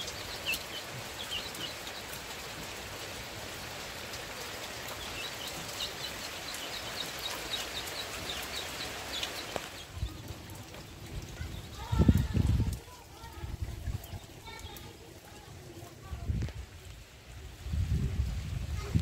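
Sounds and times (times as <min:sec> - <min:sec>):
chicks peeping: 0:00.0 - 0:02.8, 0:04.6 - 0:12.8
heavy rain: 0:00.0 - 0:19.0.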